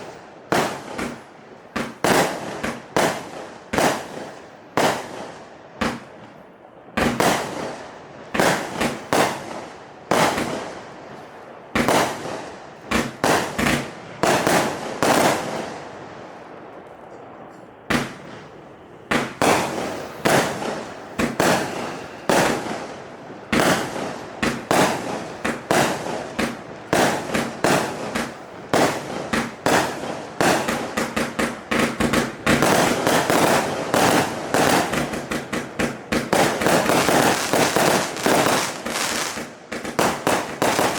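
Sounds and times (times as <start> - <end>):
firework cake bangs: 5.8 - 6.3, 7.0 - 7.6, 17.9 - 18.5, 19.1 - 22.6, 23.5 - 40.9.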